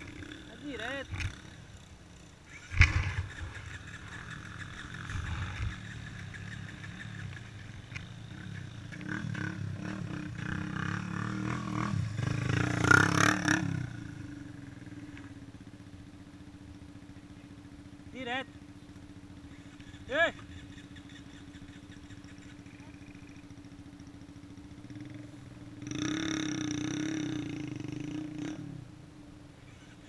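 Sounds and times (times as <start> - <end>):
vehicle engine passing by: 2.5 - 15.3.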